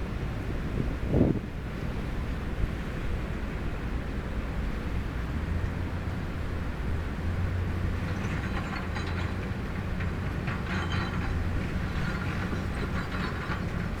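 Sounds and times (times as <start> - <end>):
excavator diesel engine running: 7.5 - 14.0
metallic clanks and scraping: 7.5 - 14.0.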